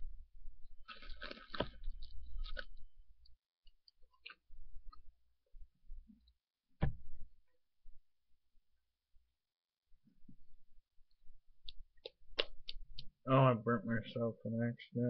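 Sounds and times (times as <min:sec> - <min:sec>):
person chewing and crunching: 0:00.8 - 0:02.8, 0:04.1 - 0:04.4.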